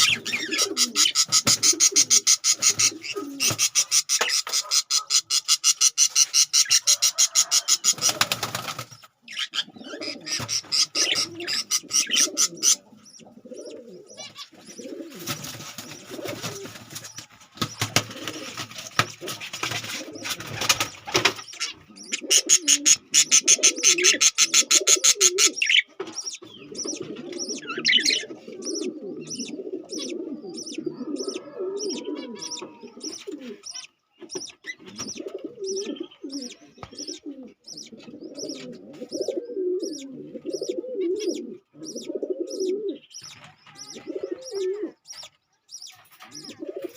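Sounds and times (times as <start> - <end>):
parrots warbling chatter: 0.0 - 8.3, 9.3 - 14.9, 21.4 - 34.5.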